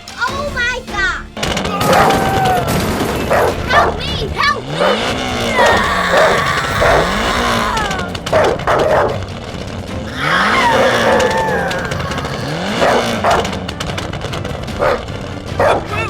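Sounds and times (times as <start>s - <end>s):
background music: 0.0s - 16.0s
vehicle engine revving: 2.5s - 8.6s, 9.4s - 15.3s.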